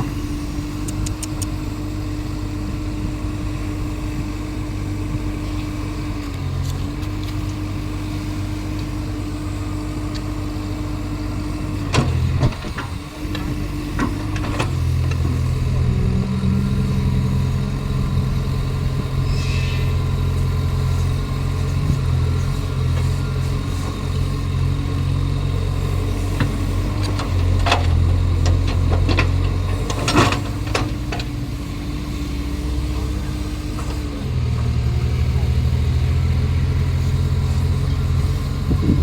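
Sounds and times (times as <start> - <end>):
excavator diesel engine running: 0.0 - 39.0
thin steady whine: 12.5 - 27.3.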